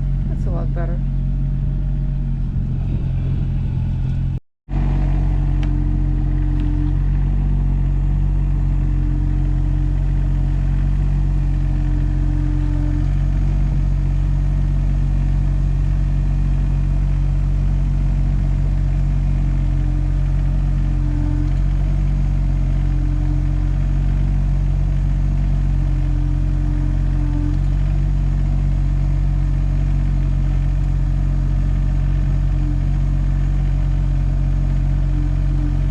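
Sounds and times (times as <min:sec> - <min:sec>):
machine engine running: 0:00.0 - 0:35.9.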